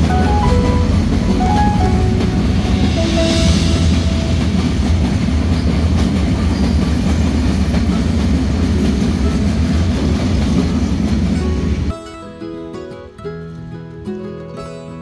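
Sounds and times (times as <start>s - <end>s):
train wheels rumbling on rails: 0.0s - 11.9s.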